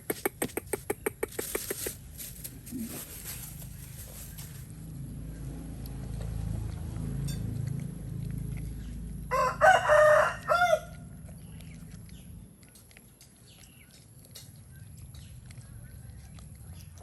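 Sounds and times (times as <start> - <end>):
low steady rumble: 2.0 - 17.0
rooster crowing: 9.3 - 11.0.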